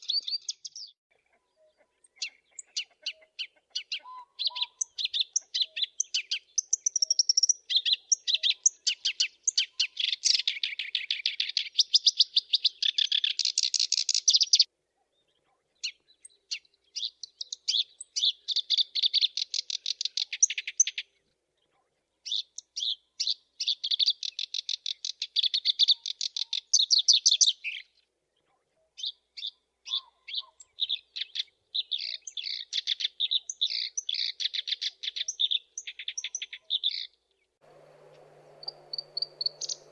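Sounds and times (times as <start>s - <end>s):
warbler singing: 0.0s - 39.9s.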